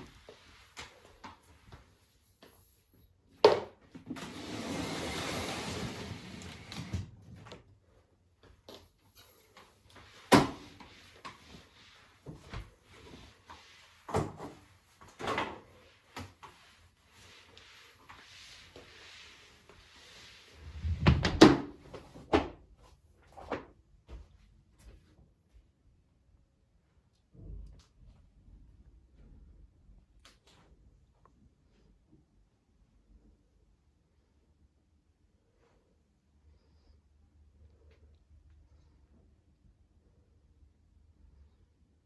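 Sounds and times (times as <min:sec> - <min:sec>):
rustling sliding noise: 0:04.0 - 0:07.6, 0:09.1 - 0:22.2.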